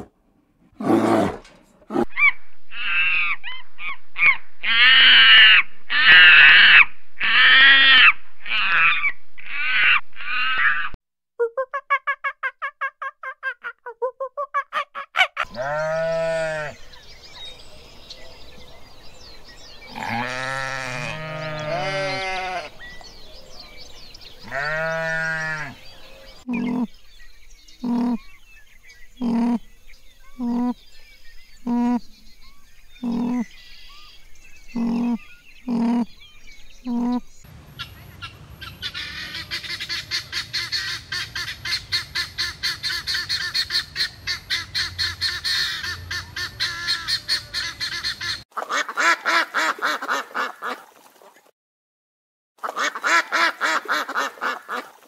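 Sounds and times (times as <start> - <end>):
guineafowl chattering: 24.5 - 27.0, 33.0 - 34.0, 34.8 - 36.2, 36.8 - 50.8
drawn-out rising and falling calls: 32.9 - 51.4.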